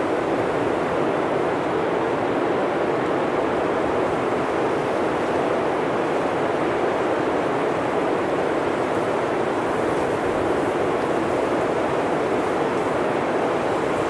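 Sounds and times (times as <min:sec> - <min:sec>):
blizzard wind through forest: 0:00.0 - 0:14.0.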